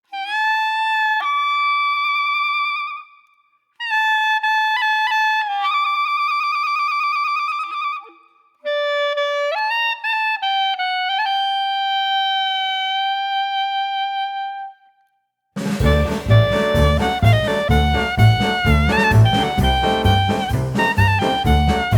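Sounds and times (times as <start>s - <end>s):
wind instrument slow melody: 15.8s - 21.9s.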